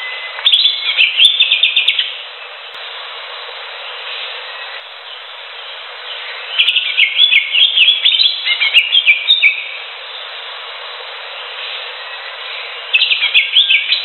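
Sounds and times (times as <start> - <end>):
bird singing chirps and whistles: 0.0 - 2.2, 6.1 - 9.8, 11.6 - 14.0
background hiss: 0.0 - 14.0.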